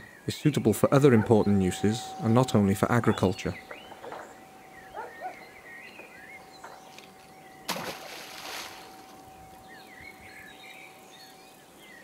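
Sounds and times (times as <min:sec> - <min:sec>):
faint steady hum: 0:00.0 - 0:12.0
small birds chirping: 0:00.0 - 0:12.0
bottle splashing in water: 0:07.7 - 0:09.0.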